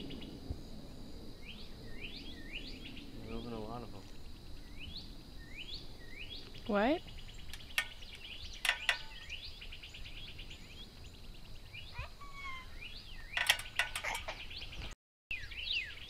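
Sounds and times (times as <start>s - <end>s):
birds chirping and trilling: 0.0s - 16.0s
whistled bird notes: 4.6s - 13.4s, 14.2s - 16.0s
sharp clicks or knocks: 8.6s - 9.2s, 13.4s - 14.4s.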